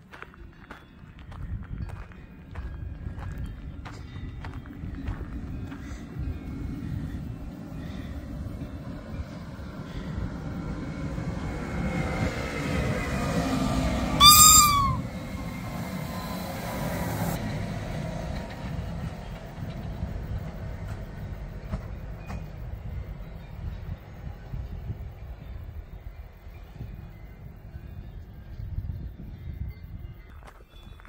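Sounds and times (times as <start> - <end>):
wheels clicking on track: 0.0 - 28.7
electric train running rumble: 0.0 - 31.0
train horn blast: 13.9 - 15.4.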